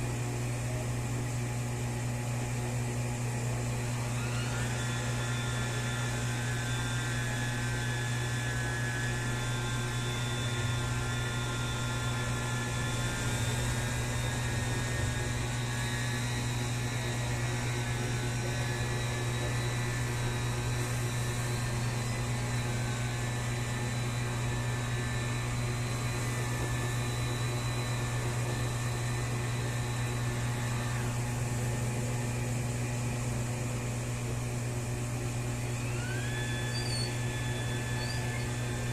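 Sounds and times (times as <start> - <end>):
small washing machine motor whining: 0.0 - 38.9.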